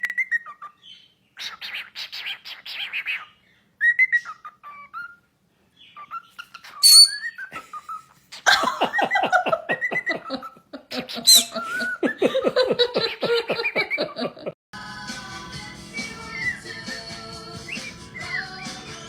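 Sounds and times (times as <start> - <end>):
sharp high bird chirp: 6.6 - 7.5, 11.3 - 11.9
bird whistling notes: 6.8 - 7.5, 11.3 - 12.0.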